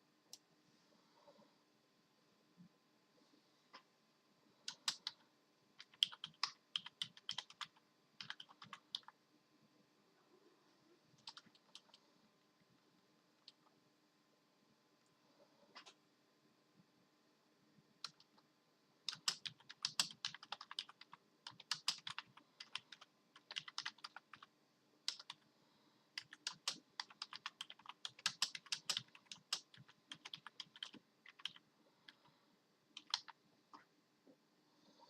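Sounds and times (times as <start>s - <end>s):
keyboard keys clicking: 5.8s - 9.1s, 11.2s - 12.0s, 19.1s - 24.5s, 25.1s - 25.4s, 26.2s - 31.6s, 33.0s - 33.4s.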